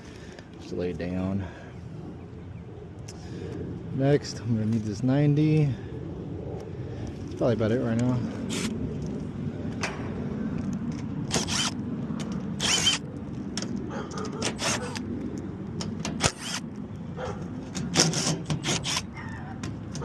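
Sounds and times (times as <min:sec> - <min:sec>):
steady low hum: 0:00.0 - 0:20.0
hand tools clicking and scraping: 0:10.9 - 0:15.1, 0:17.3 - 0:20.0.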